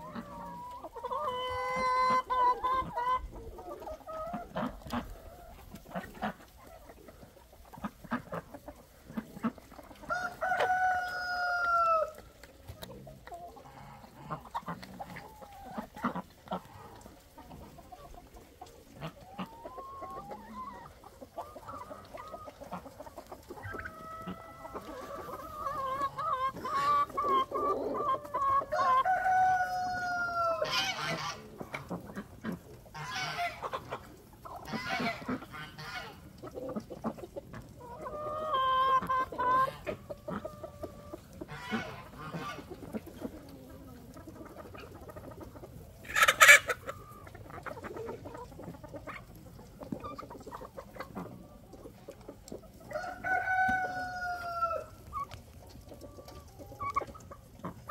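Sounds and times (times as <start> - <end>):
chickens clucking: 0.0 - 57.9
roosters crowing: 10.1 - 12.2, 24.0 - 31.4, 52.9 - 55.1.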